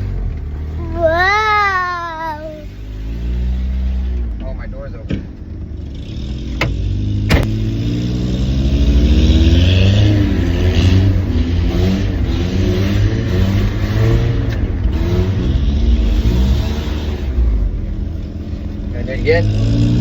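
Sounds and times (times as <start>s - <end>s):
truck engine revving: 0.0s - 20.0s
sharp knocks: 6.6s - 7.6s.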